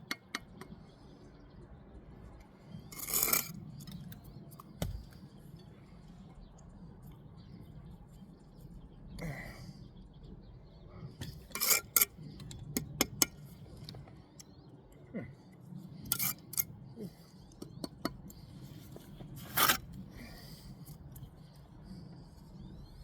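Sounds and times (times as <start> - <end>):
trowel scraping on brick: 2.9 - 3.6, 11.4 - 12.2, 16.1 - 16.6, 18.8 - 19.9.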